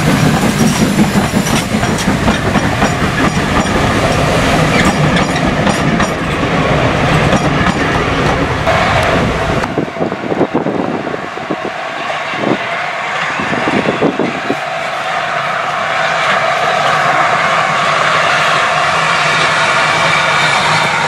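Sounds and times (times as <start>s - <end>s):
train wheels clicking over rail joints: 0.0s - 9.8s.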